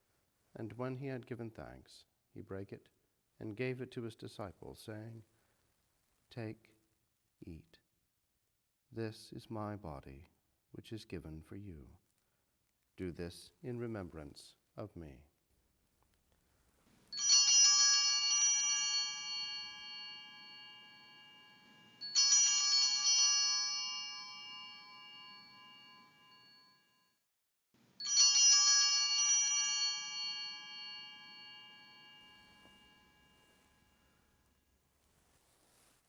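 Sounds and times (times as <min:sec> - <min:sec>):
bells ringing: 0:17.2 - 0:26.9, 0:28.0 - 0:34.1.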